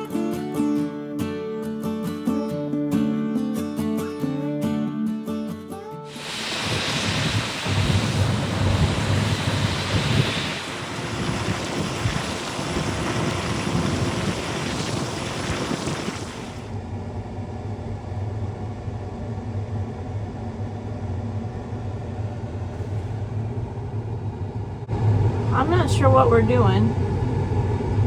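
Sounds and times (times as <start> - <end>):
wind rushing over microphone: 6.1 - 16.7
combine engine humming: 6.1 - 28.0.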